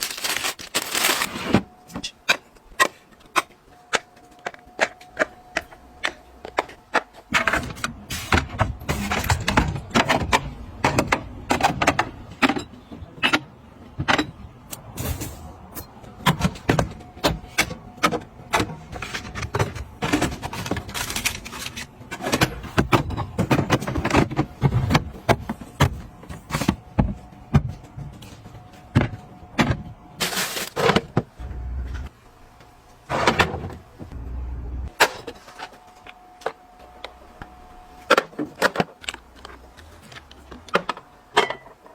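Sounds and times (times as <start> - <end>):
food containers handled: 0.0 - 7.3.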